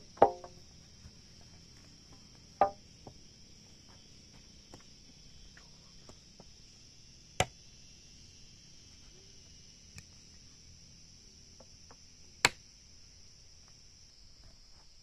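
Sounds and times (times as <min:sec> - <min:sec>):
high insect drone: 0:00.0 - 0:15.0
sharp wood crack: 0:00.2 - 0:00.5
tool striking timber: 0:00.2 - 0:00.6, 0:02.6 - 0:02.8.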